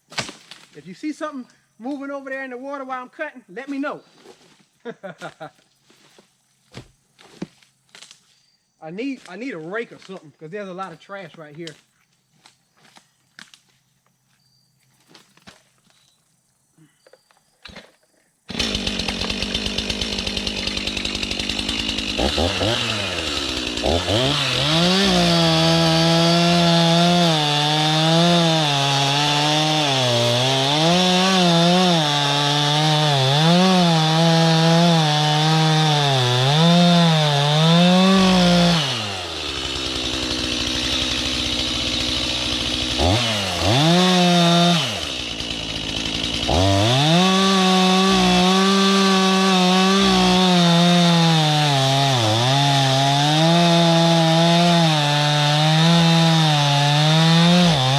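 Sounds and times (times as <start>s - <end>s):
chainsaw cutting log: 18.5s - 57.9s.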